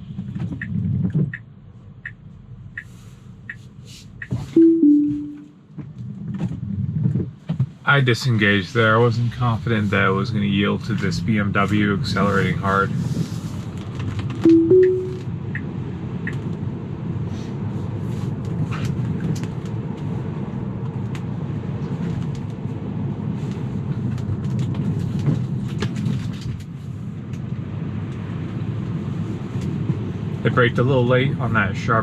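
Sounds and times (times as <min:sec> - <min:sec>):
road and tyre noise in car cabin: 0:00.0 - 0:32.0
two-note car chime: 0:04.6 - 0:05.6, 0:14.5 - 0:15.2.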